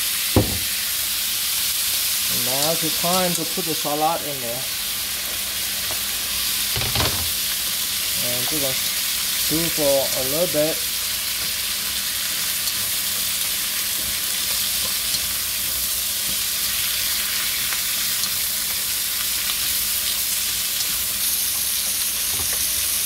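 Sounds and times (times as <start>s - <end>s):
chicken wings sizzling in oil: 0.0s - 23.0s.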